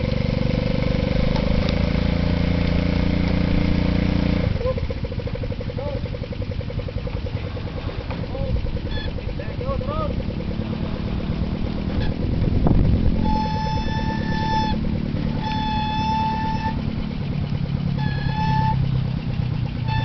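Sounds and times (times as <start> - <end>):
small petrol engine running: 0.0 - 20.0
high steady tone blasts: 6.2 - 20.0.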